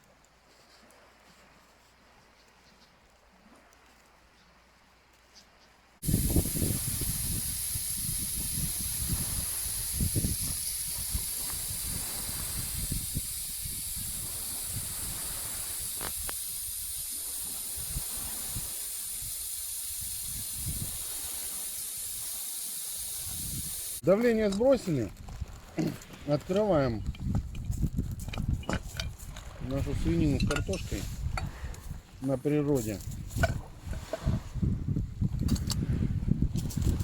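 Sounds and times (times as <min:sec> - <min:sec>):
pressure cooker steam hissing: 0:06.0 - 0:24.0.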